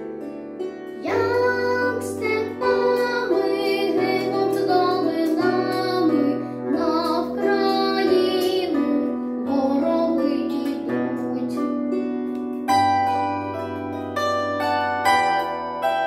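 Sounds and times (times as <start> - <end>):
instrumental accompaniment: 0.0 - 16.0
boy singing: 1.0 - 11.8.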